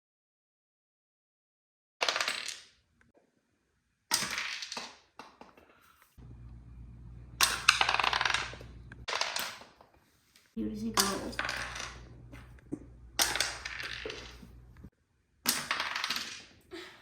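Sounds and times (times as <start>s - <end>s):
low steady hum: 6.2s - 9.1s, 10.6s - 14.9s
small objects clattering: 7.4s - 12.6s, 13.2s - 14.7s.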